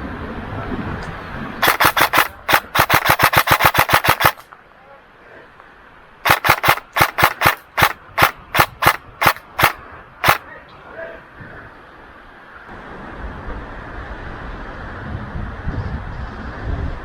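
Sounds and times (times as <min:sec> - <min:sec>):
airsoft rifle firing: 0:01.6 - 0:04.5, 0:06.2 - 0:10.4.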